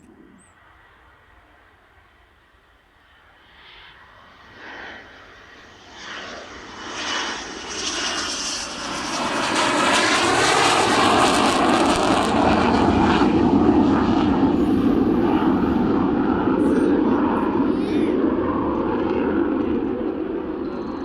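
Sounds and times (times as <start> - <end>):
jet passing close by: 0.0 - 21.0.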